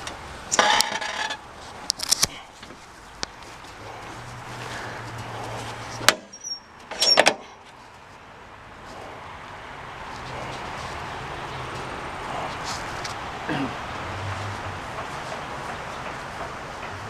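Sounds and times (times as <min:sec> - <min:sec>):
lawn tractor running: 0:00.0 - 0:02.2
clatter of knocks: 0:14.6 - 0:17.0.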